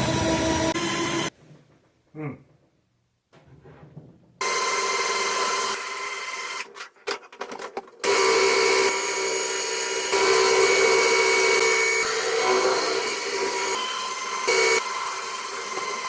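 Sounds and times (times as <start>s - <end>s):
electric drill running under load: 0.0s - 1.3s, 4.4s - 6.8s, 8.0s - 16.0s.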